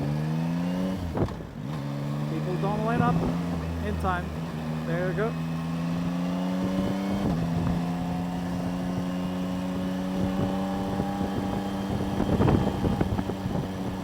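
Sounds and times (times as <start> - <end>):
motorcycle engine running: 0.0 - 14.0
road rumble: 0.0 - 14.0
wind noise: 6.6 - 14.0.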